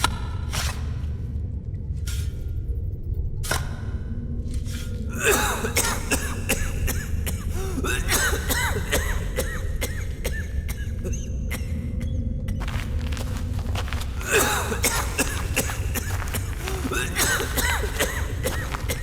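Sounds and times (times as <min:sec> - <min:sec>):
man coughing and wheezing: 0:05.2 - 0:11.8, 0:13.0 - 0:19.0
steady low rumble: 0:11.8 - 0:19.0.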